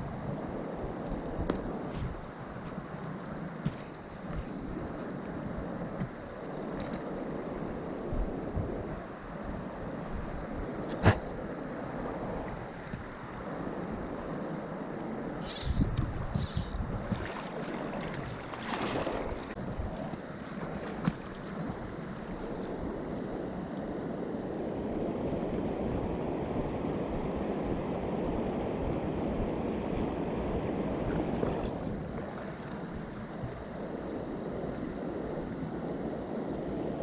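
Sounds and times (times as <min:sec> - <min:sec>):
stream water rushing over riverbed: 0:10.8 - 0:37.0.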